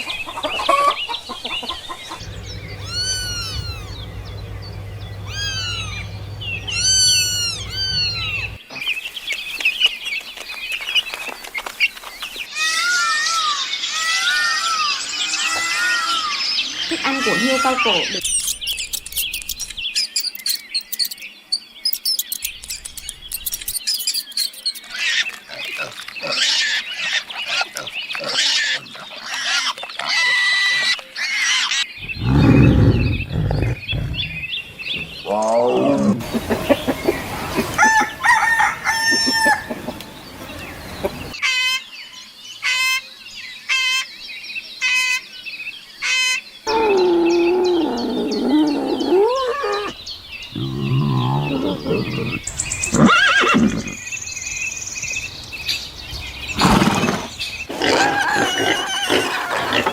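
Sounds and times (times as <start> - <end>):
animal calls: 0.3 - 8.6, 24.9 - 41.4, 46.7 - 54.1, 55.6 - 59.9
chicken crowing and clucking: 0.3 - 8.6, 36.2 - 41.4
loud low-pitched animal call: 2.1 - 8.6, 32.0 - 40.3, 46.7 - 54.0, 56.6 - 59.9.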